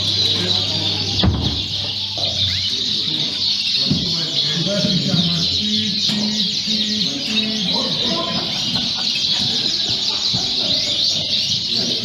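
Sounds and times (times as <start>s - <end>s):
canaries singing: 0.0s - 12.0s.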